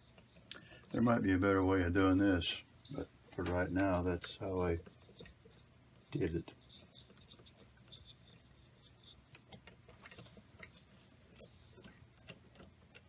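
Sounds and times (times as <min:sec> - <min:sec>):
small metal parts clicking: 0:03.8 - 0:04.4, 0:06.4 - 0:13.0.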